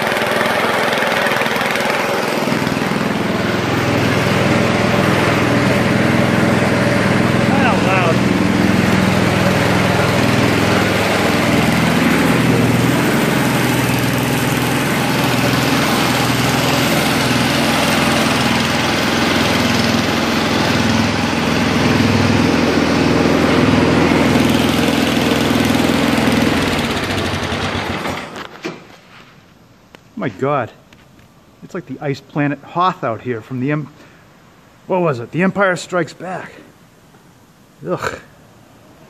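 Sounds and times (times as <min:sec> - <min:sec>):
snowblower engine running: 0:00.0 - 0:28.6.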